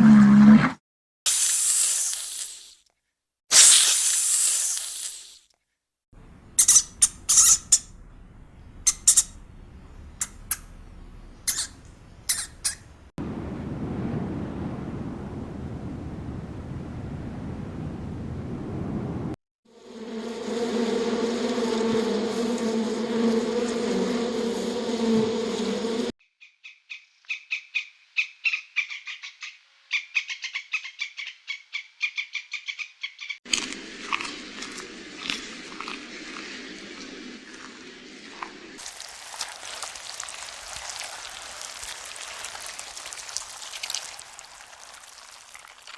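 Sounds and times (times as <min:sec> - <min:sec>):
steady low rumble: 0:06.2 - 0:19.4
small animal high-pitched calls: 0:06.6 - 0:08.0, 0:08.8 - 0:09.4, 0:11.4 - 0:12.9
buzzing drone: 0:19.8 - 0:26.1.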